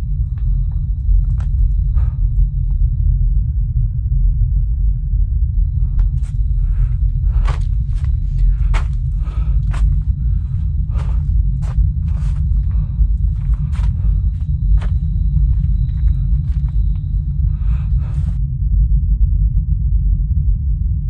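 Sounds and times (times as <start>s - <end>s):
loud low rumble: 0.0s - 21.0s
footsteps: 5.8s - 18.4s.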